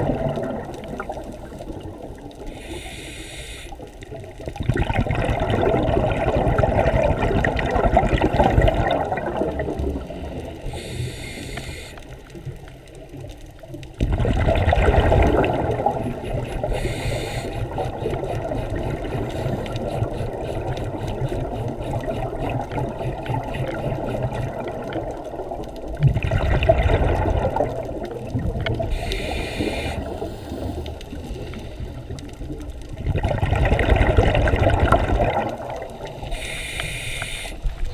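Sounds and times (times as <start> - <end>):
underwater bubbling surges: 0.0 - 2.9, 3.8 - 37.9
low underwater rushing: 0.0 - 37.9
short hisses: 2.6 - 3.8, 36.3 - 37.7.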